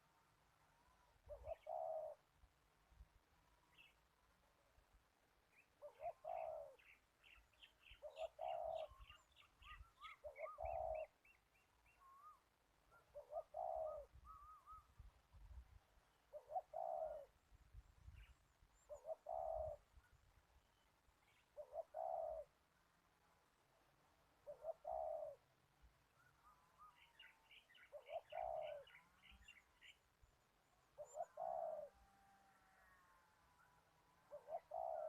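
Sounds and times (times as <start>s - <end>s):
dove cooing: 1.2s - 2.2s, 5.8s - 6.9s, 8.0s - 11.2s, 12.9s - 14.9s, 16.3s - 17.4s, 18.9s - 19.8s, 21.6s - 22.5s, 24.4s - 25.4s, 27.8s - 29.1s, 31.0s - 32.1s, 34.2s - 35.0s.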